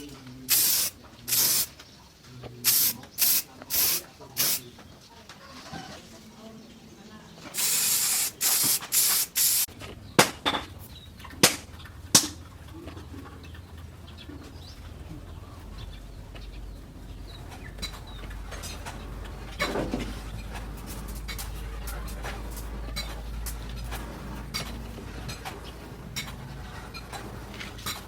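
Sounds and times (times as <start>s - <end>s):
hissing spray bursts: 0.5s - 1.7s, 2.6s - 4.6s, 7.5s - 9.7s.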